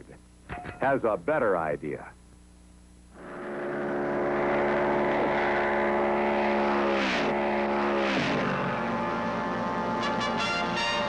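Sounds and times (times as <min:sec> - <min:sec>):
car engine revving with gear shifts: 0:03.2 - 0:11.0.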